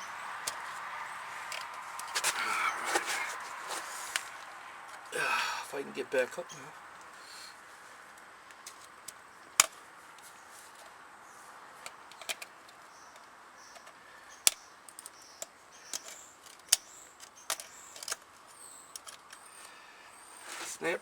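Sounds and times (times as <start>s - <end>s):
metallic clicks of hand tools: 13.1s - 18.3s, 18.9s - 19.7s.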